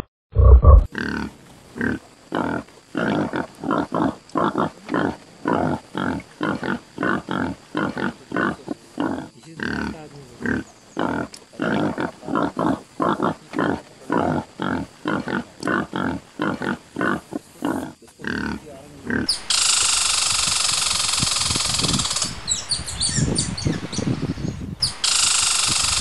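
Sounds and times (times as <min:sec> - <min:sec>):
wild boar grunting: 0:00.4 - 0:19.3
loud steady hiss: 0:18.6 - 0:26.0.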